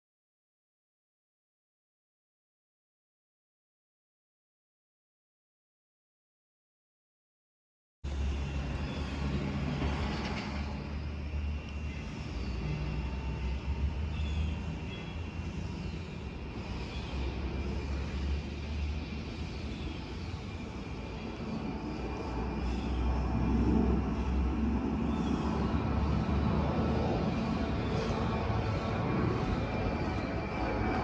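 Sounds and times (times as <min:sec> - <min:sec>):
jet engines rumbling: 0:08.1 - 0:31.0.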